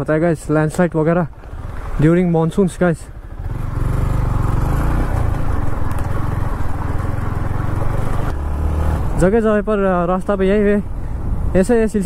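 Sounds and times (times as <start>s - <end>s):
motorcycle engine running: 1.0s - 11.4s.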